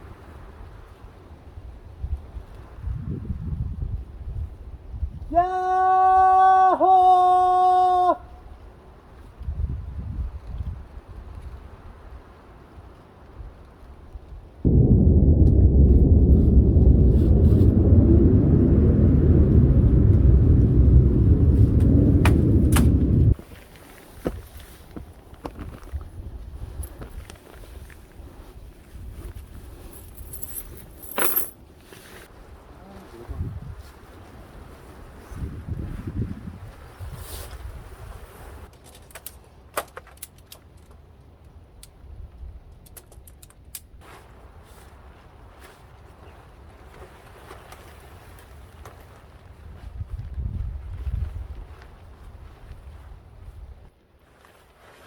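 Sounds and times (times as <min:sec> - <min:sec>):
loud low rumble: 0:14.7 - 0:23.4
clicks and clinks of hard objects: 0:30.0 - 0:31.6, 0:42.7 - 0:43.9.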